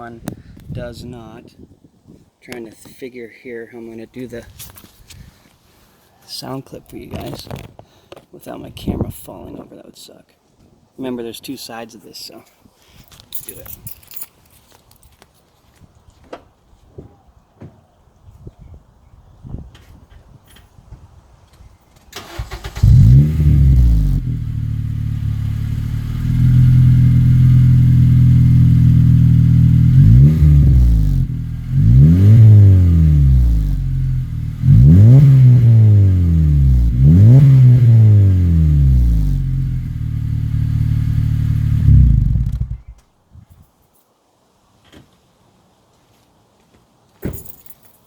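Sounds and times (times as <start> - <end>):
car engine idling and revving: 22.6 - 42.9.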